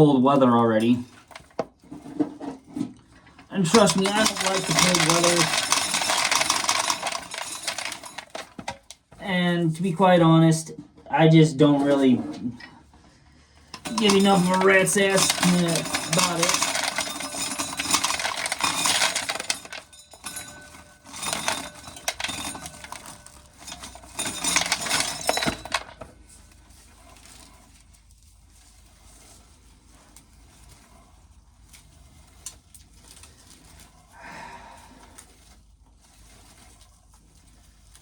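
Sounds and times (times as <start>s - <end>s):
corn kernels rattling off sheller: 3.5s - 8.9s, 13.7s - 27.9s.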